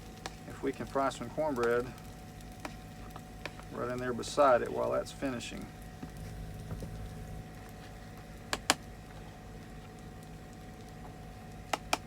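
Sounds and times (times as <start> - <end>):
generator humming: 0.0 - 12.0
sharp clicks: 8.5 - 8.9, 11.7 - 12.0.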